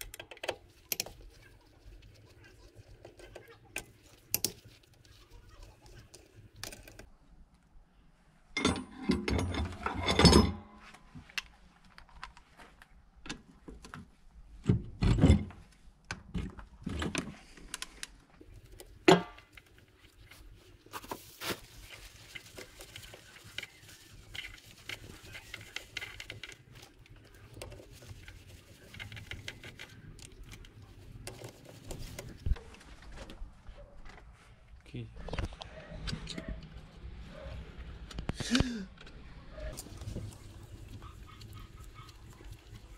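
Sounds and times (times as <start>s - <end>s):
metal tools clinking and clattering: 8.6s - 10.8s.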